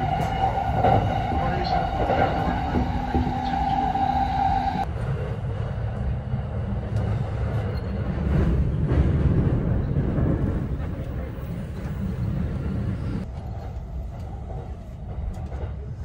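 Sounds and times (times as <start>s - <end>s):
train rumbling on track: 0.0s - 16.0s.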